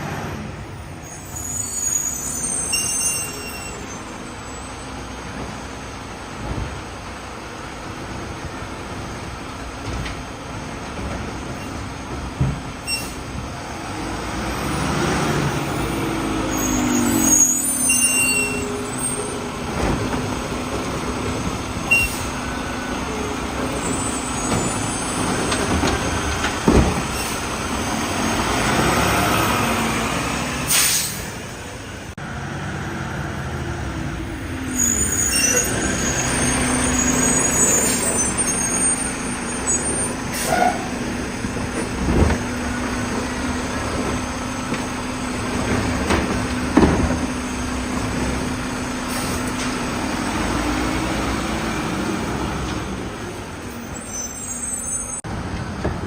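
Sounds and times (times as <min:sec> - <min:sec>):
air brake hiss: 0:30.6 - 0:31.4.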